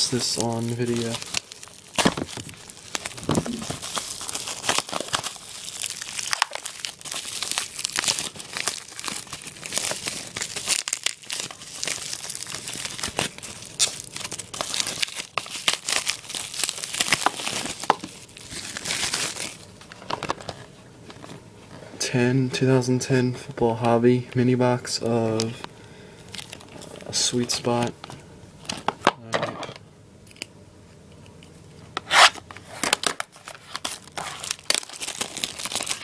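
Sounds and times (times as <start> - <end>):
plastic wrapping crinkling: 0.0 - 21.8, 26.2 - 29.0, 32.1 - 36.0.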